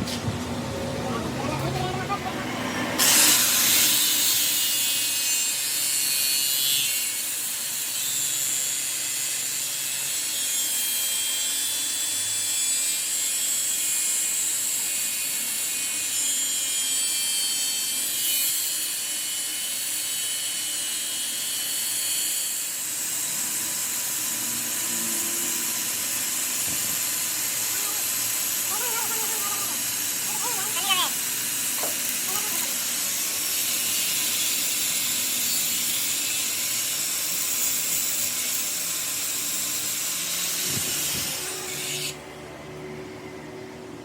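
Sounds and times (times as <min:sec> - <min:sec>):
power tool grinding metal: 0:01.2 - 0:42.3.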